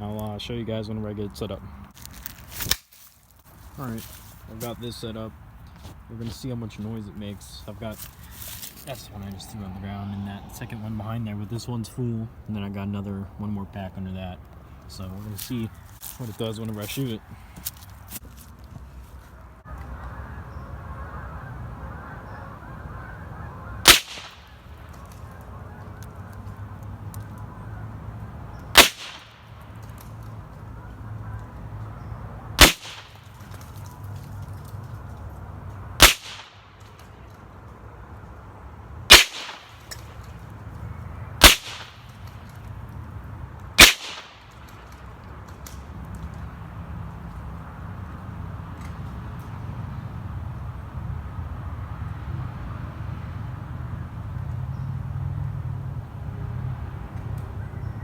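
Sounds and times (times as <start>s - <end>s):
steady background noise: 0.0s - 58.0s
rifle shot: 23.8s - 24.6s, 28.7s - 29.5s, 32.6s - 33.3s, 36.0s - 36.6s, 39.1s - 39.8s, 41.4s - 42.1s, 43.8s - 44.5s.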